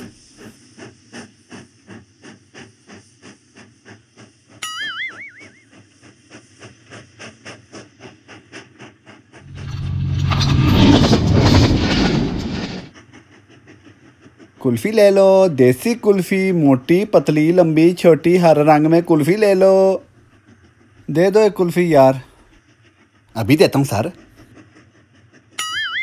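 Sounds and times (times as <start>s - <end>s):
rushing hiss with deep rumble: 0.0s - 4.6s, 5.7s - 25.5s
train wheels clicking over joints: 0.0s - 26.0s
wavering train whistle: 4.6s - 5.7s, 25.6s - 26.0s.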